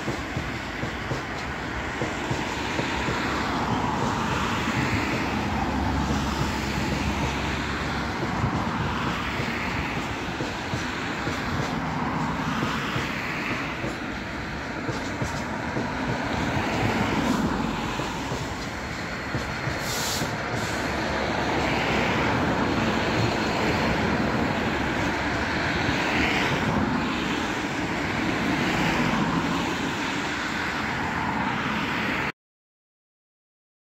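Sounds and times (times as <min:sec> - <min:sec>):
freight train rumbling: 0:00.0 - 0:32.3
brief high hiss: 0:19.8 - 0:20.9.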